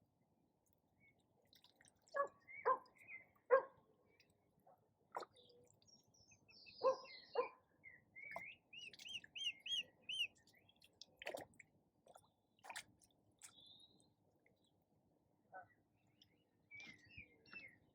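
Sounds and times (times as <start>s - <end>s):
songbird whistling: 8.2s - 10.3s.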